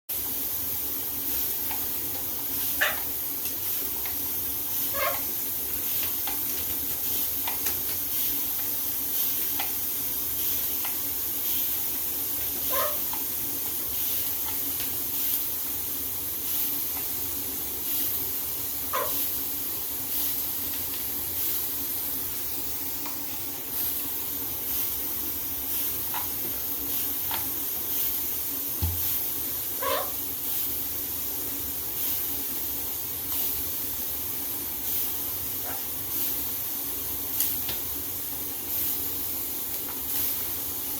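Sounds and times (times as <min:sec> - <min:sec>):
shower water spraying: 0:00.1 - 0:40.9
macaw calling: 0:29.8 - 0:30.2.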